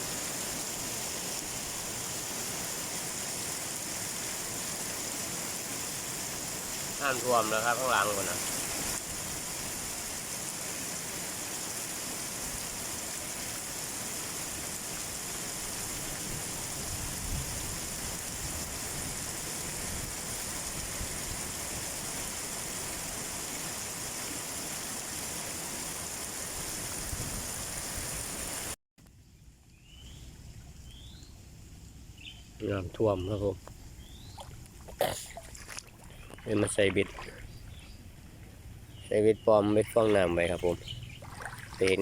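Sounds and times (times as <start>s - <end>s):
heavy rain falling: 0.0s - 28.8s.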